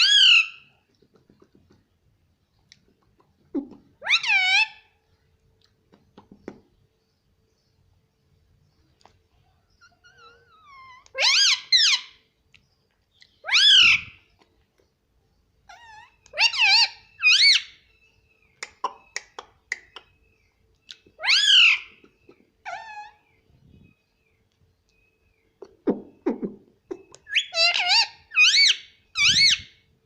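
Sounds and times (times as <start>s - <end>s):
parrot calling: 0.0s - 0.7s, 3.9s - 4.9s, 9.8s - 12.2s, 13.4s - 14.2s, 15.7s - 17.8s, 20.9s - 23.4s, 27.1s - 29.8s
parrot chatter: 3.8s - 4.8s, 15.7s - 17.7s, 27.0s - 29.6s.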